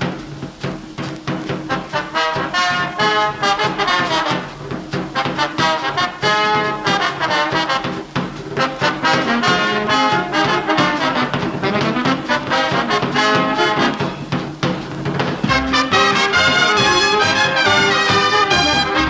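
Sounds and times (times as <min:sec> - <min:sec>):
big band swing music: 0:00.0 - 0:19.0.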